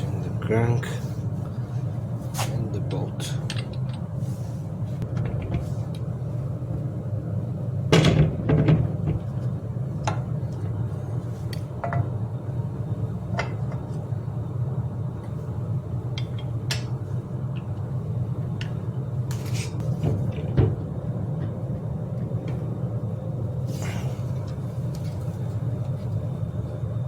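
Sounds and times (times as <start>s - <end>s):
steady low hum: 0.0s - 27.0s
metal tools clinking and tapping: 3.4s - 4.1s.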